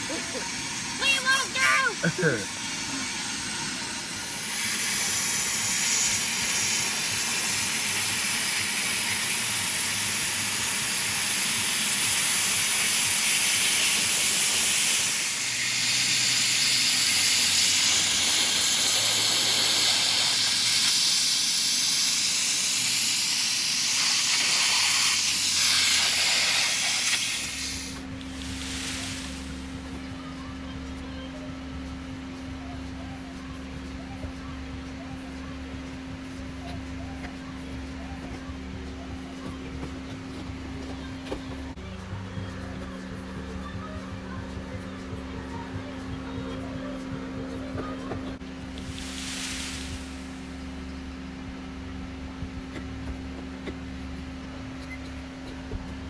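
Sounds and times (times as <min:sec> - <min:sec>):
water spraying onto car: 0:24.2 - 0:30.0, 0:48.7 - 0:50.8
low steady hum: 0:27.4 - 0:56.0.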